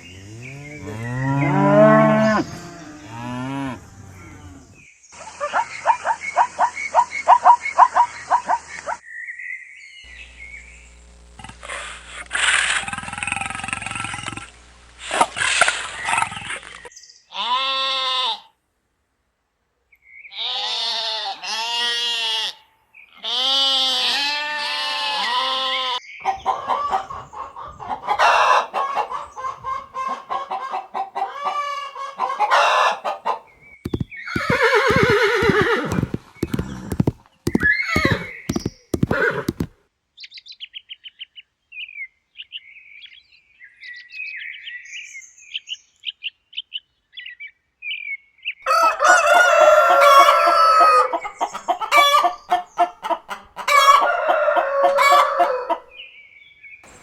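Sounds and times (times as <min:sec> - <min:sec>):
pitched animal calls: 0:00.0 - 0:04.8, 0:32.2 - 0:39.7
sharp clicks: 0:33.9 - 0:39.7.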